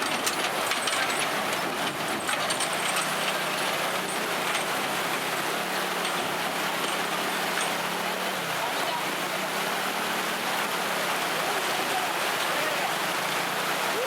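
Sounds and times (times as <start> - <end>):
lorry engine humming: 0.0 - 14.0
water splashing: 0.0 - 14.0.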